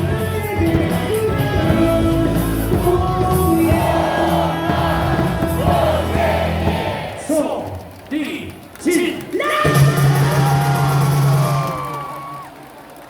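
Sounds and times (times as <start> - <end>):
crowd singing and shouting: 0.0 - 7.8
music over loudspeakers: 0.0 - 8.2, 9.1 - 11.8.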